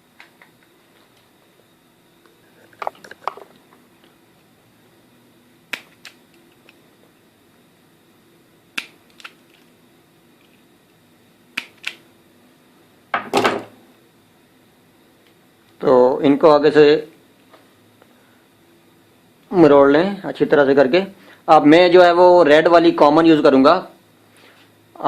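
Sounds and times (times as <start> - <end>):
wire stripper clicks and snips: 5.7 - 6.8, 8.8 - 9.7, 11.6 - 12.0.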